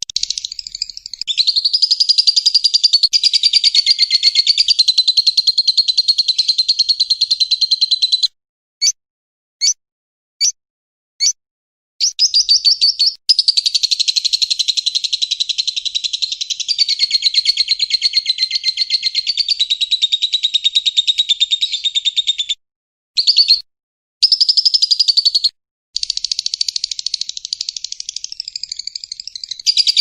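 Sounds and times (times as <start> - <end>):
bird chattering trills: 0.0 - 6.8, 26.0 - 30.0.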